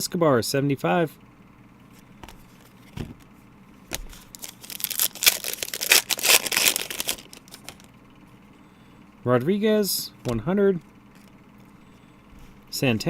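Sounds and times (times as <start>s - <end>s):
wrapper tearing and crinkling: 4.1s - 7.9s.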